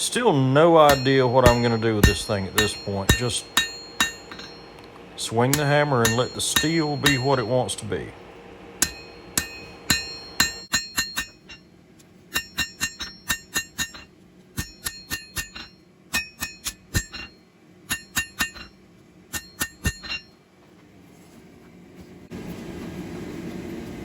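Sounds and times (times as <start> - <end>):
hammer striking steel on anvil: 0.7 - 8.1, 8.7 - 11.7, 12.3 - 20.4.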